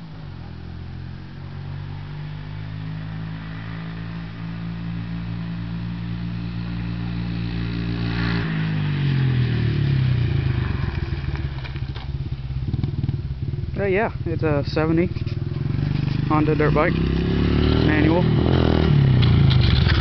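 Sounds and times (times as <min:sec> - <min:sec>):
dirt bike engine running: 0:10.1 - 0:20.0.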